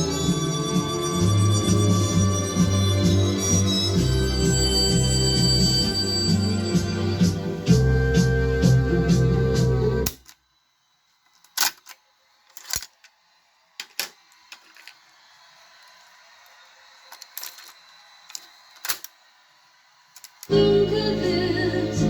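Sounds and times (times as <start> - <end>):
music from a player: 0.0 - 10.1, 20.5 - 22.0.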